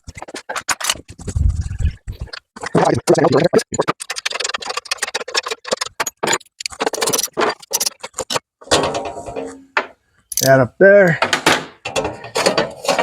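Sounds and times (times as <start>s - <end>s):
hand tools scraping metal: 11.9s - 13.0s.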